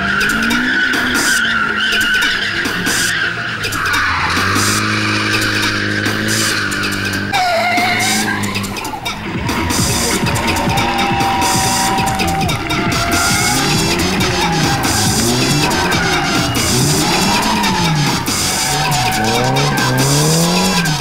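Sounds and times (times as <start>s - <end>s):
car engine running: 0.0s - 21.0s
tyres squealing: 0.0s - 21.0s.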